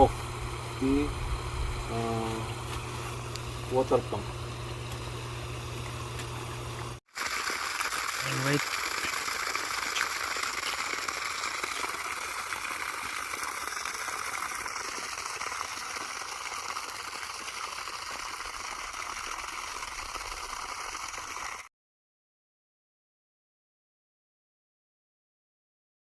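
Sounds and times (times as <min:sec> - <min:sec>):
flowing water rushing: 0:07.0 - 0:21.7.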